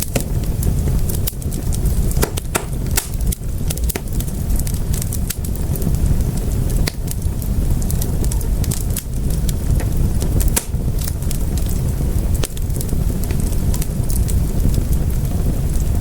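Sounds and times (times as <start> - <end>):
rumble of burning flames: 0.0 - 16.0
wood fire crackling: 0.0 - 16.0.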